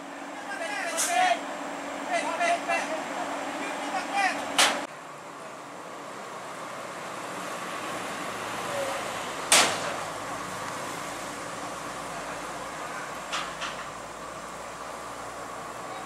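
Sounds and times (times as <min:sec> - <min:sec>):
heavy equipment running: 0:00.0 - 0:16.0
loud sharp crack: 0:09.5 - 0:10.0.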